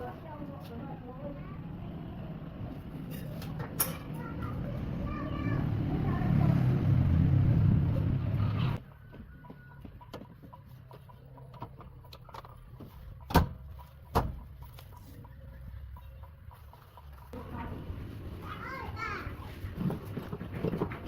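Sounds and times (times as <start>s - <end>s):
vehicle engine rumbling: 0.0s - 8.8s.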